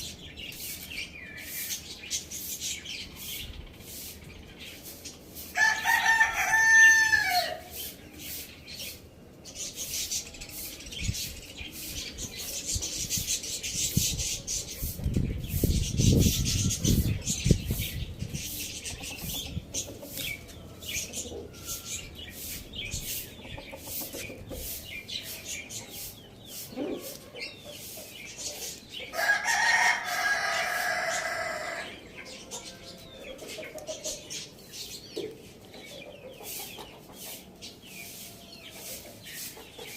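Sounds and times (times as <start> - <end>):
rooster crowing: 5.6 - 7.7, 29.1 - 31.9
chickens clucking: 7.6 - 39.9.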